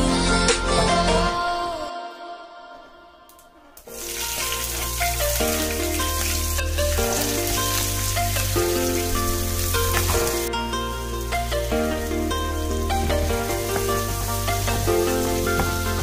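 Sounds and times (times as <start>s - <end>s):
background music: 0.0s - 16.0s
onions sizzling in hot oil: 3.9s - 16.0s.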